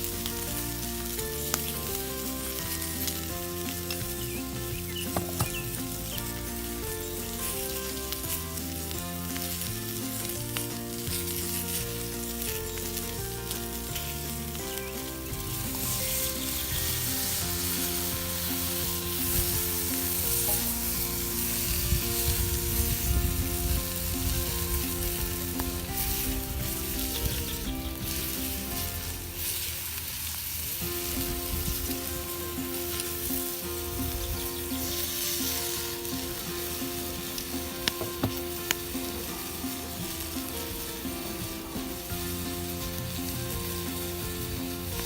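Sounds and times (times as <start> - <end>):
steak sizzling in a frying pan: 0.0 - 45.0.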